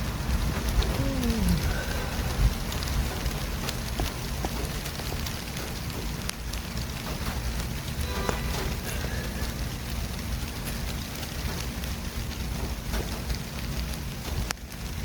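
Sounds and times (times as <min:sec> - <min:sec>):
passing vehicles rumble and hiss: 0:00.0 - 0:15.0
brief pitched tone: 0:08.0 - 0:08.8.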